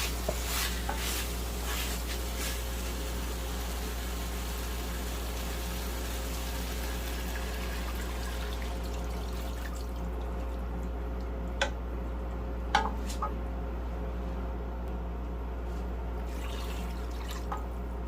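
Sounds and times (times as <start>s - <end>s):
water pouring into a pot: 2.6s - 10.6s.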